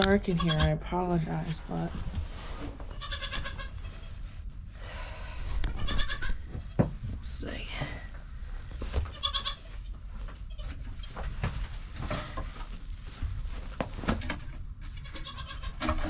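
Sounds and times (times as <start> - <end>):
rustling and knocks of movement: 0.0 - 4.8, 5.5 - 16.0
goat kids bleating: 0.3 - 0.8, 2.9 - 4.2, 5.6 - 6.8, 9.1 - 9.8, 15.0 - 16.0.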